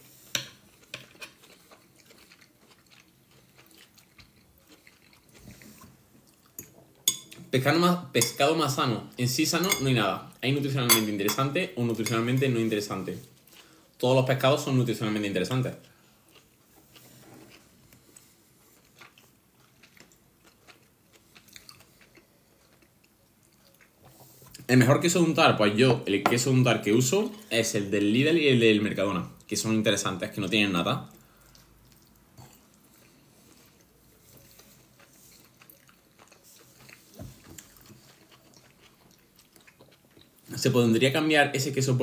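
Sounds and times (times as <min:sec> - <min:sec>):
chewing with mouth closed: 0:00.8 - 0:06.8, 0:15.8 - 0:24.7, 0:31.1 - 0:40.5.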